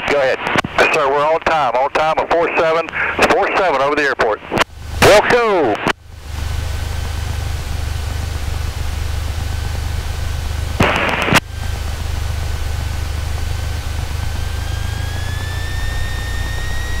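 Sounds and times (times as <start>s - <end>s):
radio click: 0.0s - 1.6s, 2.2s - 3.4s, 10.8s - 11.4s
radio static burst: 0.0s - 6.0s, 10.6s - 12.3s
aircraft engine hum in cabin: 5.9s - 17.0s.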